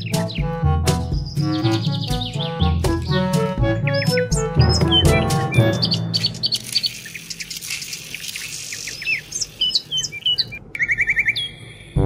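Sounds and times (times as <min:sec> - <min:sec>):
birds chirping: 0:00.0 - 0:12.0
light hiss: 0:06.5 - 0:10.4.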